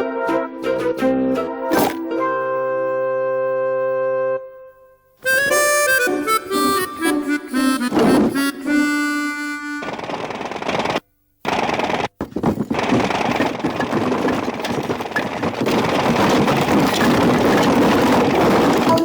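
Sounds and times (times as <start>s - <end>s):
loud rapid rattling: 9.7s - 19.0s.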